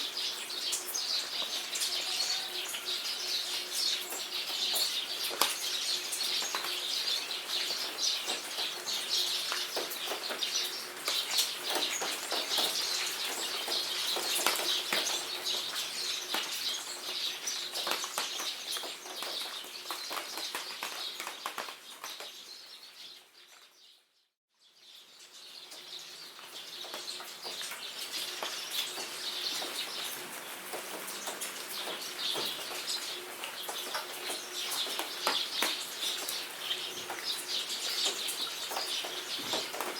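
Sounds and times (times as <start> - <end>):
rain pattering: 0.0 - 22.7, 25.5 - 39.9
birds chirping and singing: 0.0 - 23.7.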